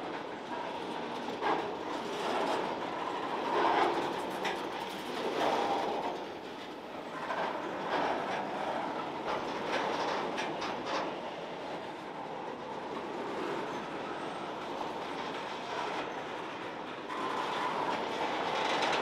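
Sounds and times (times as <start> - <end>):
freight train wheels clacking: 0.0 - 19.0
track creaking: 12.6 - 19.0.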